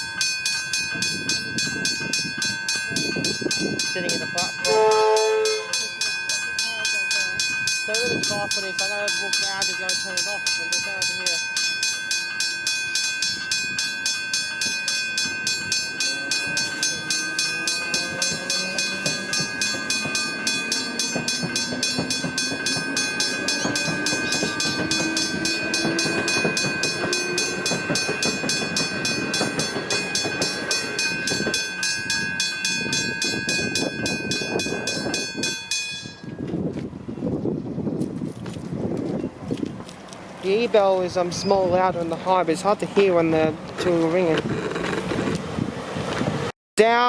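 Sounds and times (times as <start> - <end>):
train whine rising in pitch: 0.0 - 8.1, 11.1 - 36.8
level crossing bells ringing: 0.0 - 36.5
train wheel clatter: 0.0 - 36.8, 40.4 - 45.5.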